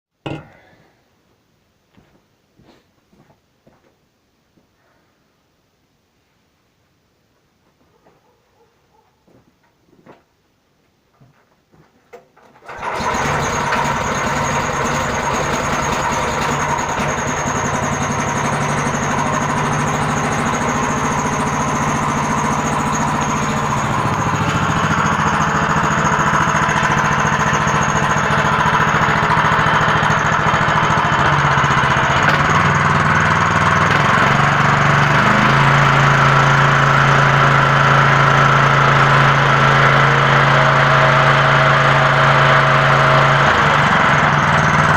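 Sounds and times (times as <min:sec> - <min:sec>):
engine starting and running: 0:12.1 - 0:44.9.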